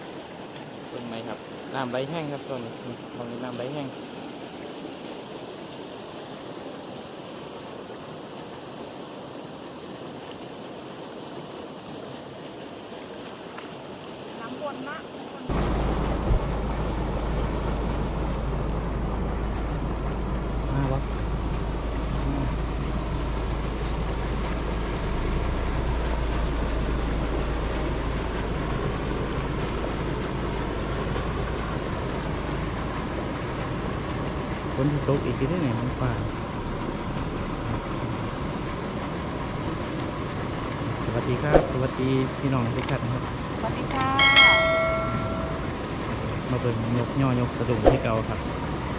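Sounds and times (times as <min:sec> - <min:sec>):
deep low rumble: 0:15.5 - 0:34.2
water pouring from drain pipe: 0:15.6 - 0:44.1.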